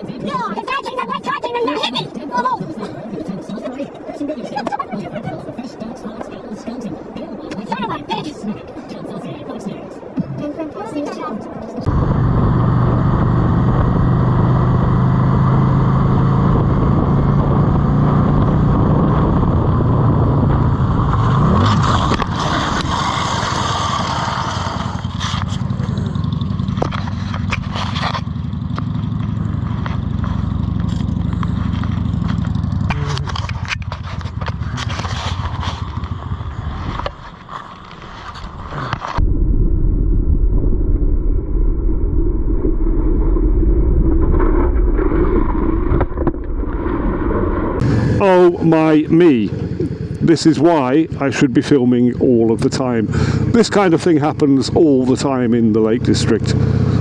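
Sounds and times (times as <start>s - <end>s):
motorcycle engine running: 11.9s - 39.1s, 47.6s - 57.0s.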